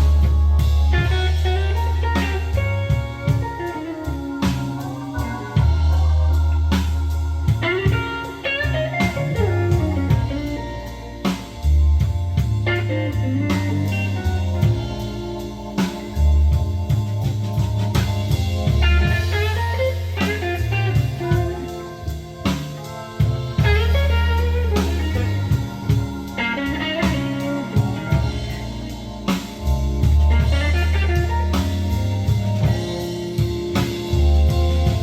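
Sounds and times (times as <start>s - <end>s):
bass: 0.0s - 35.0s
blues guitar runs: 0.0s - 35.0s
drum kit: 0.0s - 35.0s.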